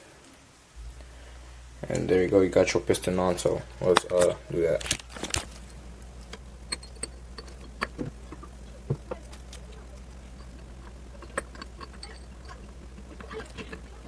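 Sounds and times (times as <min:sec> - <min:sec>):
low hum: 0:00.0 - 0:14.0
small metal parts clicking: 0:04.0 - 0:14.0.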